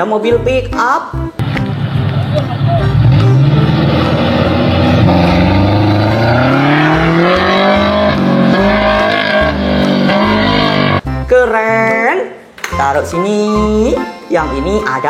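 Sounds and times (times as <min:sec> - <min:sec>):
car engine revving: 0:01.4 - 0:11.0.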